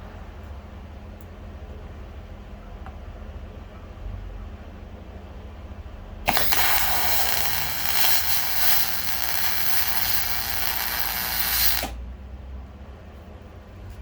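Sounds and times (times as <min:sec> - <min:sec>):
power tool running: 0:06.3 - 0:12.0.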